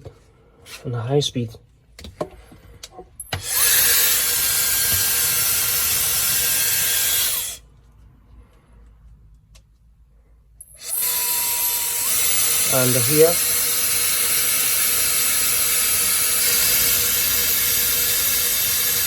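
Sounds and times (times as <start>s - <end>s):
hair dryer blowing: 3.4s - 7.6s, 10.8s - 19.0s.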